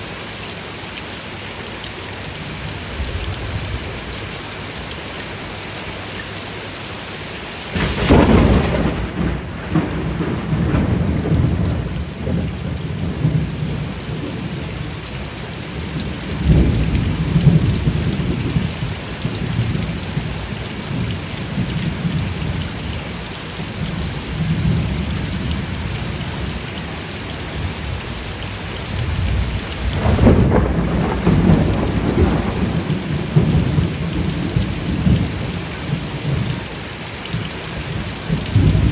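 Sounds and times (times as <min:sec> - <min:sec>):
rain falling: 0:00.0 - 0:38.9
thunder cracking and rumbling: 0:07.8 - 0:14.8, 0:15.8 - 0:20.3, 0:28.9 - 0:36.6, 0:38.3 - 0:38.9.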